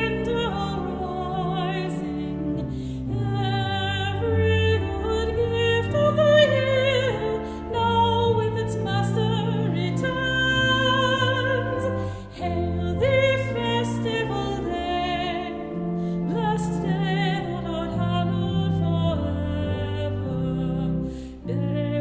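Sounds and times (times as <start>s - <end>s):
organ chords: 0.0s - 22.0s
soprano singing a hymn: 0.0s - 22.0s.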